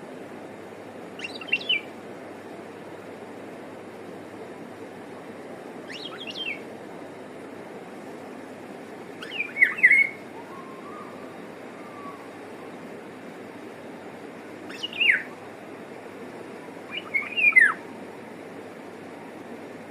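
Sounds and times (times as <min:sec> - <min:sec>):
steady hiss: 0:00.0 - 0:19.9
oriole calling: 0:01.1 - 0:02.0, 0:05.8 - 0:06.7, 0:09.1 - 0:12.9, 0:14.5 - 0:15.8, 0:16.8 - 0:17.9.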